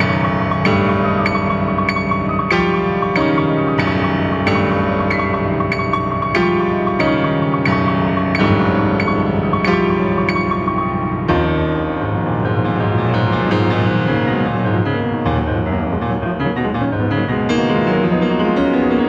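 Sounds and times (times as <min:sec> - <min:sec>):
solo piano playing: 0:00.0 - 0:19.0.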